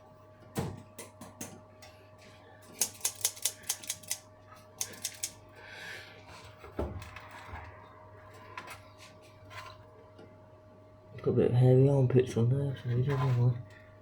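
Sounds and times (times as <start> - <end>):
scissors snipping: 2.8 - 4.2, 4.8 - 5.4.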